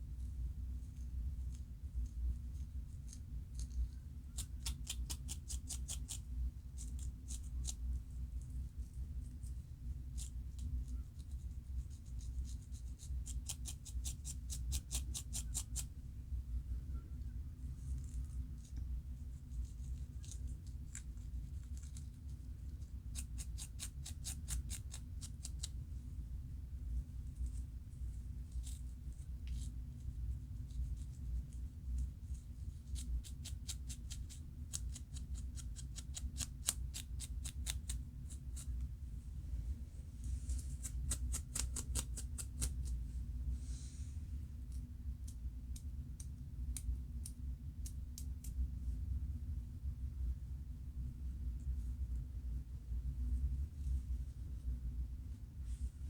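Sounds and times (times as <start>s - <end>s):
steady low hum: 0.0s - 56.0s
scalp scratching: 40.3s - 42.9s.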